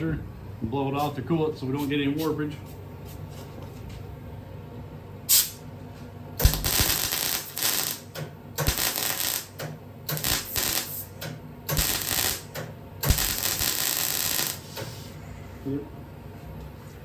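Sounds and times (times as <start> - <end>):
electric welder crackling: 5.3 - 5.6, 6.4 - 14.9.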